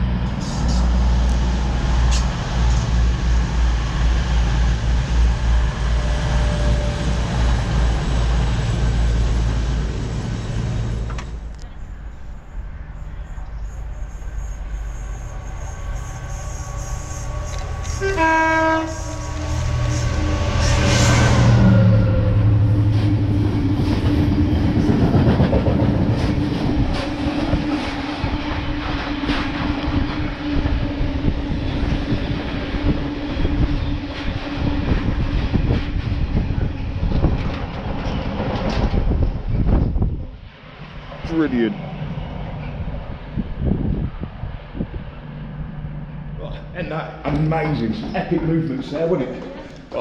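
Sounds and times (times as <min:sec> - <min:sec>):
diesel locomotive engine rumbling: 0:00.0 - 0:50.0
two-tone train horn: 0:16.0 - 0:22.8.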